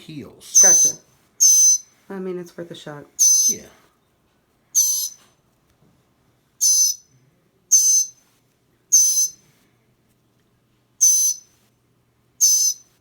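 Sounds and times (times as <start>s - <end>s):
bird giving harsh raspy calls: 0.6s - 1.9s, 3.2s - 3.7s, 4.8s - 5.2s, 6.6s - 7.1s, 7.7s - 8.2s, 8.9s - 9.4s, 11.0s - 11.4s, 12.4s - 12.9s.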